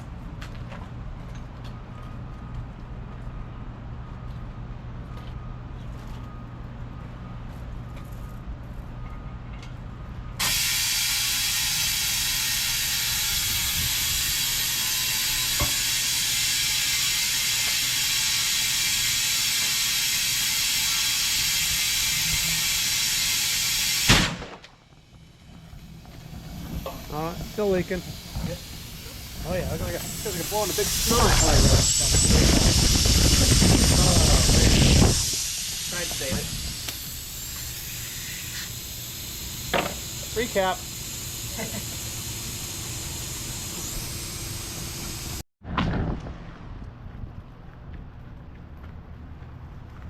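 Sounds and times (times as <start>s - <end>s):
compressed air hissing: 10.4s - 24.3s, 25.8s - 45.4s.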